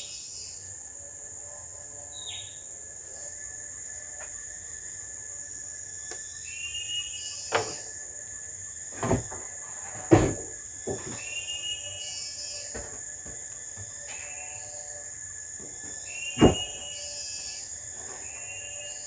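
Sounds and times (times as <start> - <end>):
insects droning: 0.0 - 19.0
sharp knocks: 16.4 - 16.8.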